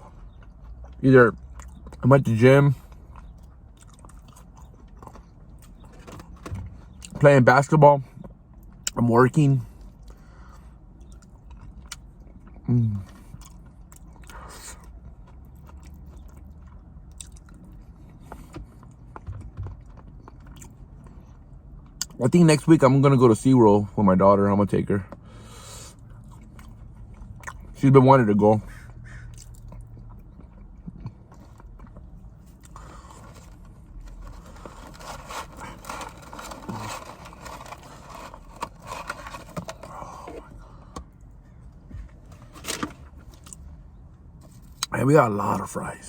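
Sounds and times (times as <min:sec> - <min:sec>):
person chewing food: 0:02.9 - 0:05.8, 0:10.9 - 0:22.1, 0:28.8 - 0:41.3
food packaging rustling: 0:32.7 - 0:40.4.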